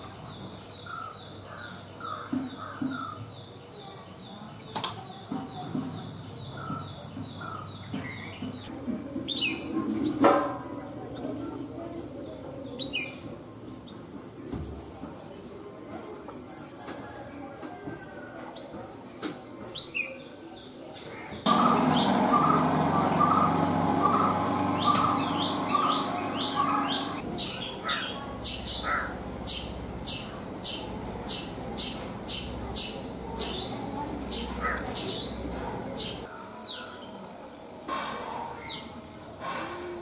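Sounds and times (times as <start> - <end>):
birds chirping and calling: 0.0 - 10.2, 18.6 - 37.2
high falling bird chirps: 21.5 - 36.4.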